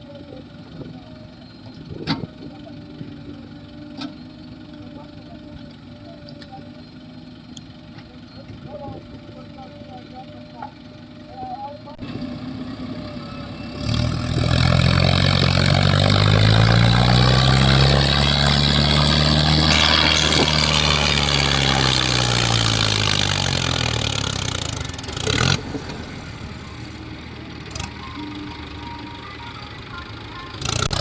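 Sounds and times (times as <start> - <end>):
heavy diesel engine revving: 11.9 - 31.0.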